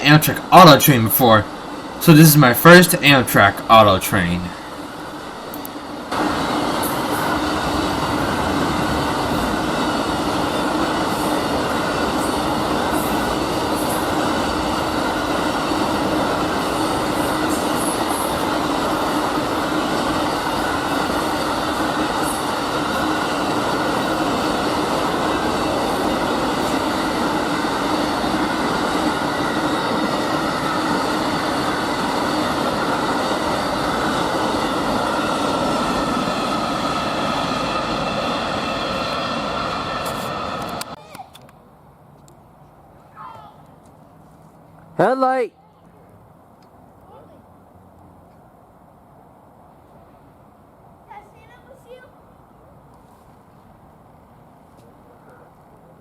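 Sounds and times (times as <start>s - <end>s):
train cars rumbling past: 4.4s - 41.0s.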